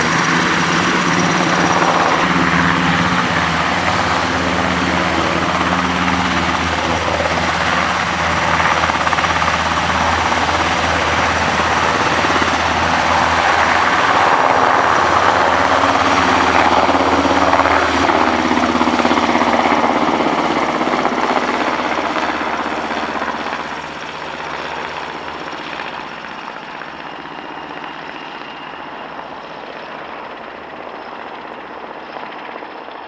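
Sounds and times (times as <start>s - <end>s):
helicopter flying away: 0.0s - 33.0s.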